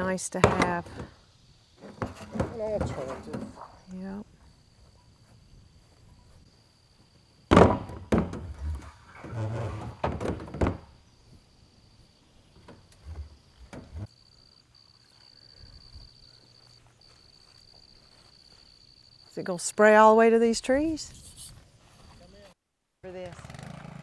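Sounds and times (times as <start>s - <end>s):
crickets chirping: 0.0s - 22.6s
heavy thunks and knocks: 0.4s - 1.2s, 1.8s - 3.7s, 7.5s - 11.0s, 12.6s - 14.1s.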